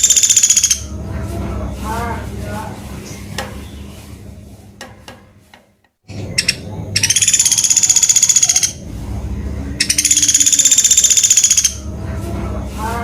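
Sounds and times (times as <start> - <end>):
bird rattling trills: 0.0 - 0.9, 6.4 - 8.8, 9.8 - 11.8.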